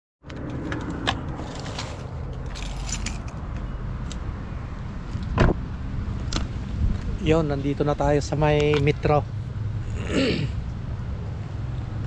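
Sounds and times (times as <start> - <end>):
car rumbling: 0.3 - 12.0
keys jingling: 1.5 - 3.4.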